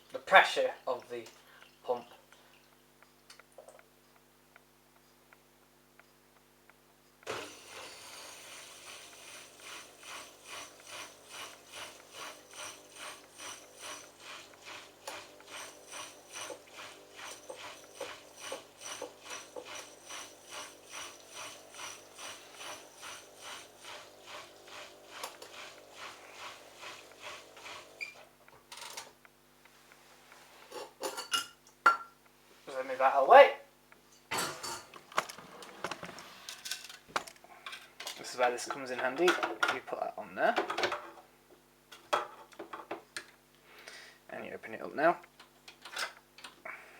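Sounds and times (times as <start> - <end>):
washing machine pump rattling: 7.3 - 28.2.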